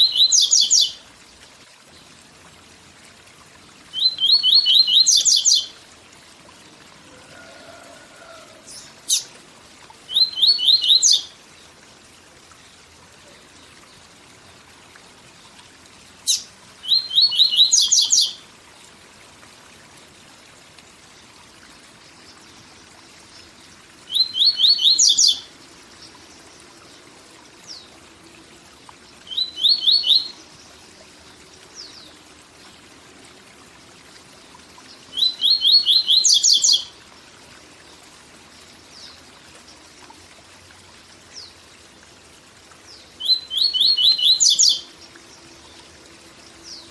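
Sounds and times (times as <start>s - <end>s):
waterfall rushing: 6.8s - 9.4s
bird singing: 10.1s - 11.3s, 24.1s - 25.5s, 29.3s - 30.4s, 35.1s - 36.9s, 43.2s - 44.9s.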